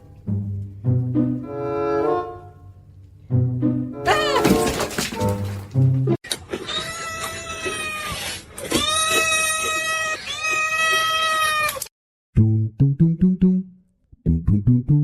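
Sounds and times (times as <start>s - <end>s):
cat yowling: 6.7s - 11.9s.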